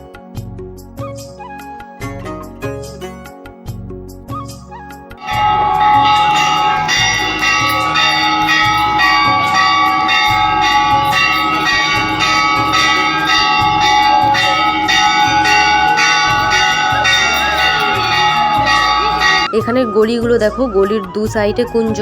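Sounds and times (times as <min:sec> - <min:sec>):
temple bells ringing rapidly: 0:05.2 - 0:20.7.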